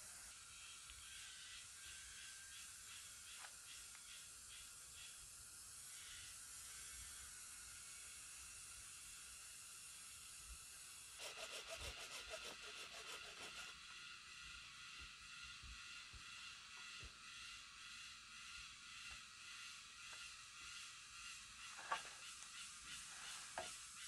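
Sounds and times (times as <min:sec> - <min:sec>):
steady high hiss: 0:00.0 - 0:24.0
rapid pulsing call: 0:11.2 - 0:13.9.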